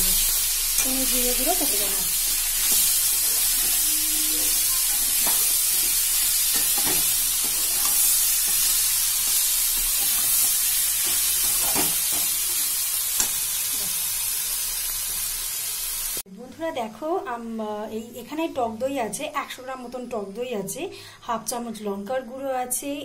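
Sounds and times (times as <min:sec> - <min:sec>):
chicken sizzling in oil: 0:00.0 - 0:16.2
spatula scraping and knocking pan: 0:02.3 - 0:12.6.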